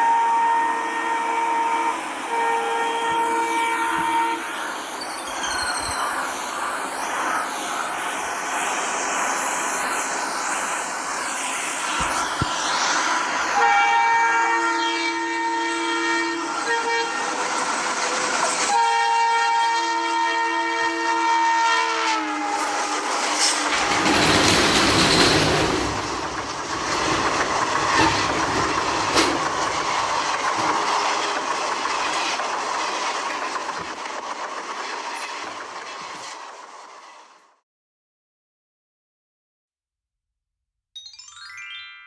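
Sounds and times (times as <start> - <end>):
train horn: 0.0 - 4.9, 13.3 - 34.0
passing train rumble and clatter: 0.0 - 37.4.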